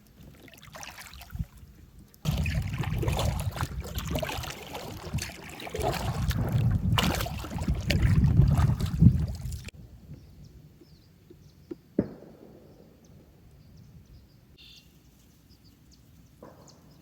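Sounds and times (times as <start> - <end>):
faint bird chirps: 12.7 - 17.0.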